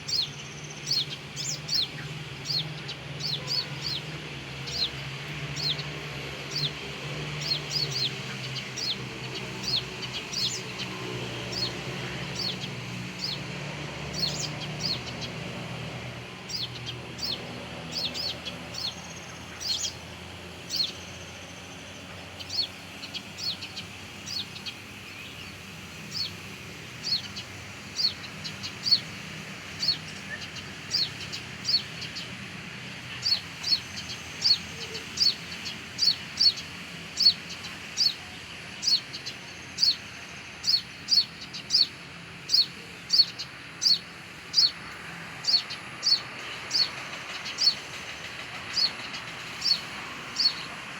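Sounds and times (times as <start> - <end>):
bird chirping high: 14.1 - 15.3, 16.5 - 20.0, 38.8 - 44.8, 45.4 - 47.9, 48.7 - 50.8.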